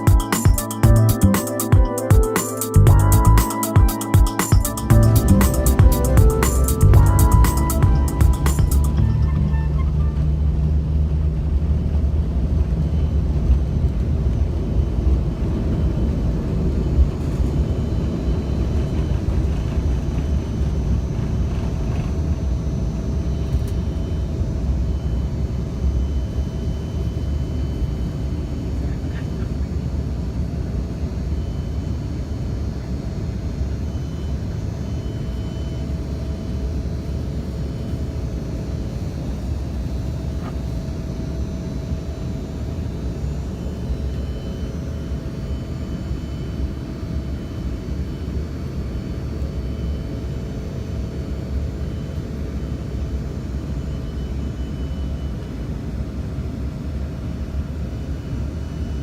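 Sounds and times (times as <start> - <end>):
faint steady hum: 1.8 - 59.0.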